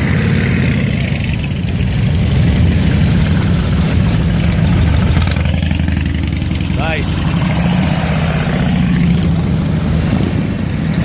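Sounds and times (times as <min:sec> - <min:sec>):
motorcycle engine idling: 0:00.0 - 0:07.5.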